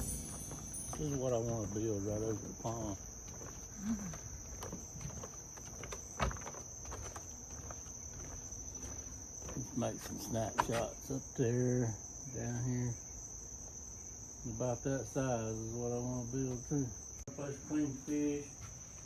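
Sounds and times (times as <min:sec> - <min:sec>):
insect chorus: 0:00.0 - 0:19.0
man's low voice: 0:00.9 - 0:03.0.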